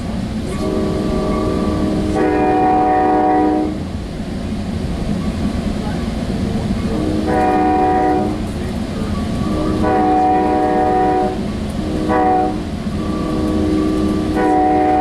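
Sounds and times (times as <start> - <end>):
train rumbling on rails: 0.0 - 15.0
train horn chord: 0.5 - 3.8, 6.9 - 8.5, 9.5 - 15.0.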